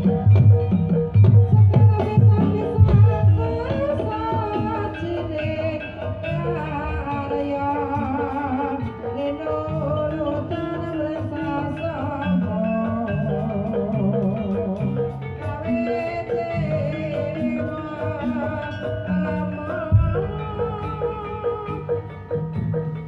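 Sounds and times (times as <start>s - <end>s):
gamelan music: 0.0s - 23.0s
person singing long notes: 6.3s - 22.0s.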